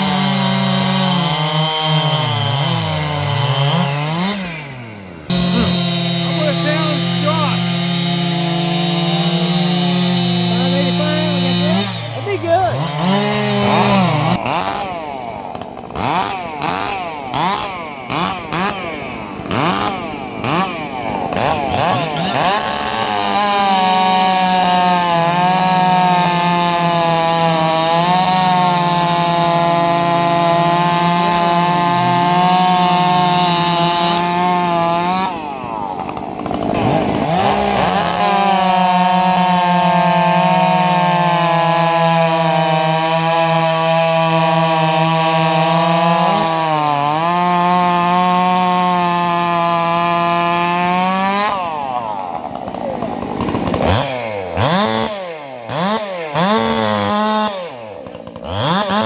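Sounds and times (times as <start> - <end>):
chainsaw engine revving: 0.0 - 59.0.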